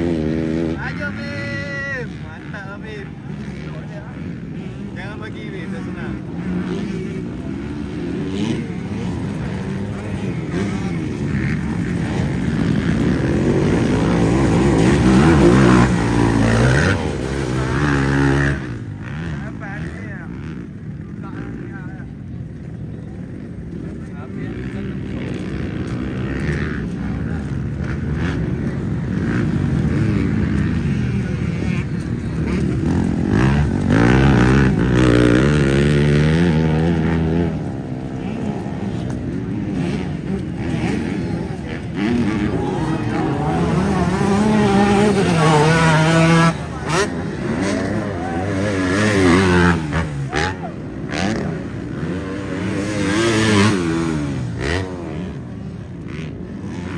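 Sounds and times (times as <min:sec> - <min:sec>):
dirt bike engines revving: 0:00.0 - 0:56.9.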